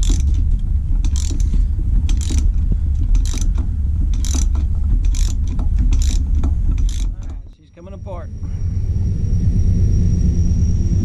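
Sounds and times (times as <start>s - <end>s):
ratchet pawl clicking: 0.0s - 7.5s
low rumble: 0.0s - 11.0s.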